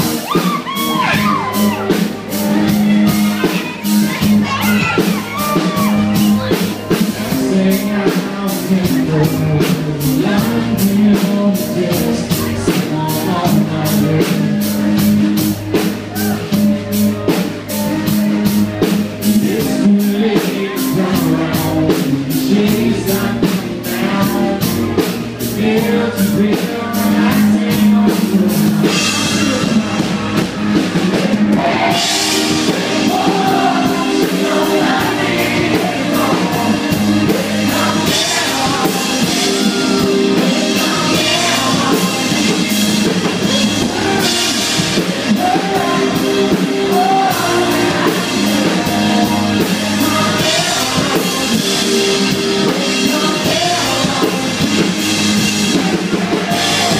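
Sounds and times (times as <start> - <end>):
drums steady beat: 0.0 - 56.9
live band music: 0.0 - 56.9
man singing: 0.0 - 56.9.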